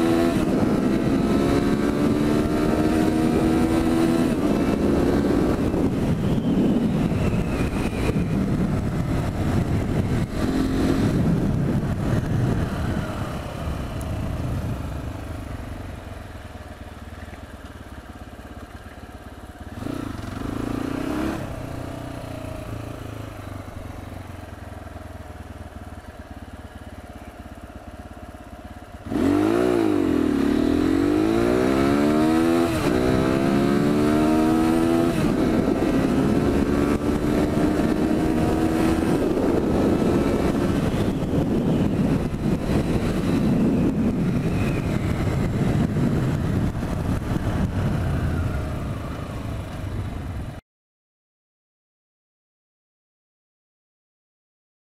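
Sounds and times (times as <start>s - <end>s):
motorcycle engine accelerating: 0.0s - 50.6s
wind rushing: 0.2s - 15.2s, 29.4s - 50.4s.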